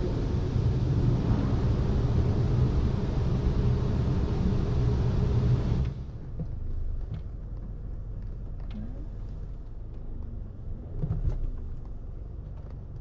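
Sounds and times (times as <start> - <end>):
car wash machinery rushing: 0.0 - 5.9.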